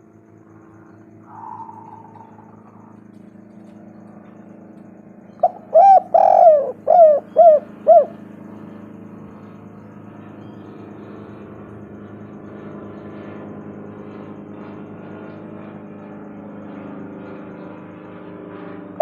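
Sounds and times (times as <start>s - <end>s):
faint steady hum: 0.0s - 13.9s
dove cooing: 1.2s - 3.1s, 5.3s - 8.8s.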